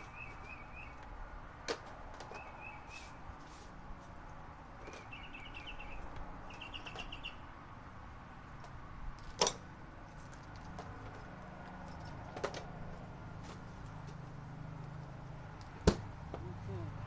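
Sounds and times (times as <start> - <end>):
bird chirping: 0.0 - 1.0, 2.3 - 3.2, 4.8 - 7.6.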